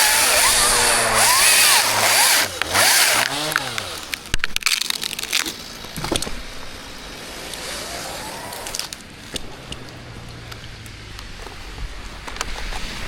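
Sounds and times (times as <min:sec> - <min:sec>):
chainsaw revving and idling: 0:00.0 - 0:04.4, 0:06.9 - 0:09.0
wood and branches cracking: 0:00.0 - 0:12.8.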